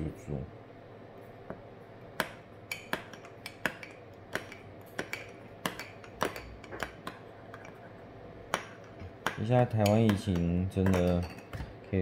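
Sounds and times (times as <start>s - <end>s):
utensils clinking against dishes: 8.5s - 12.0s.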